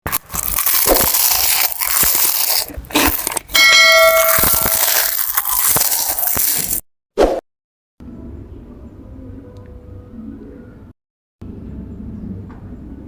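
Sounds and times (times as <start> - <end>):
crunching raw vegetables: 0.1 - 6.8
bell-like ringing tone: 3.6 - 4.8.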